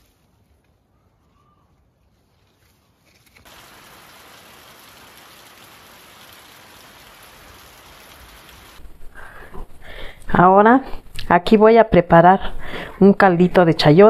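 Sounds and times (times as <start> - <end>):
steady rain: 3.2 - 9.5
water streaming off roof: 3.4 - 9.0.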